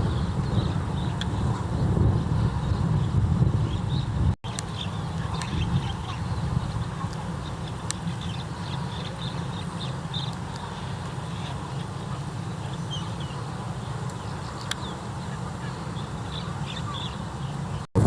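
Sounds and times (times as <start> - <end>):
steady low rumble: 0.0 - 9.7
birds chirping: 0.0 - 18.0.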